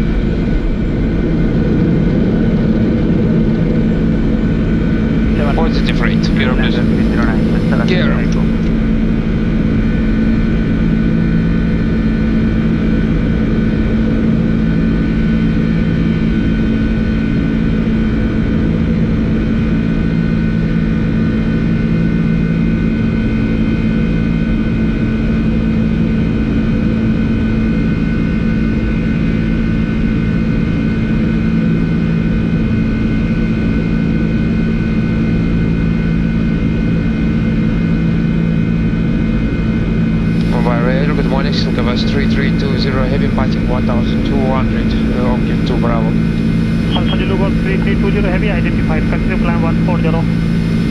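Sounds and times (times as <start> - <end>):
strong low hum: 0.0 - 19.8, 38.4 - 50.9
jet engine and airflow rush: 0.7 - 9.3, 40.2 - 50.9.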